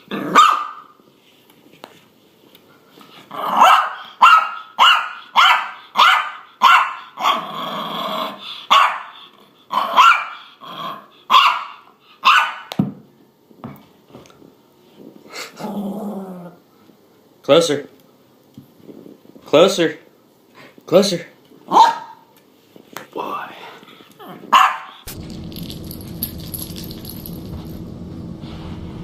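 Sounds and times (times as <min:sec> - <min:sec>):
dog barking: 0:00.3 - 0:00.9, 0:03.5 - 0:07.4, 0:08.7 - 0:09.2, 0:09.9 - 0:10.4, 0:11.3 - 0:12.7, 0:21.7 - 0:22.3, 0:24.5 - 0:25.0.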